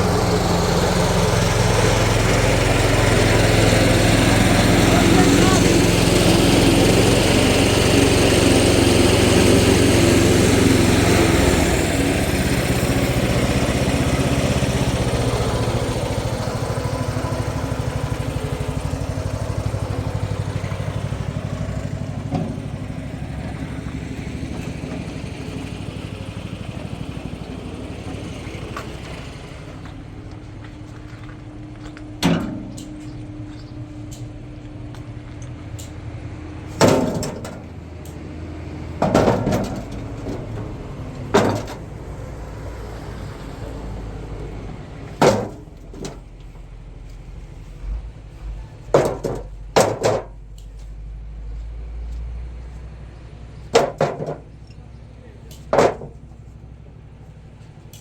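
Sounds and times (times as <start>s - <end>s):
small engine running: 0.0s - 32.0s.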